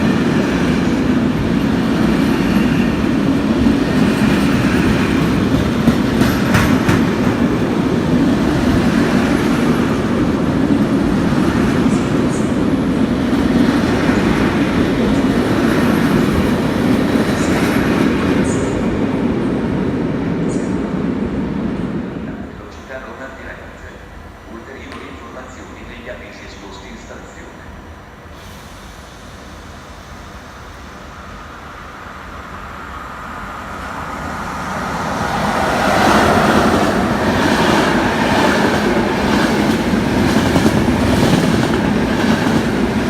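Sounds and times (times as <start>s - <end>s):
train wheels rumbling on rail: 0.0s - 43.0s.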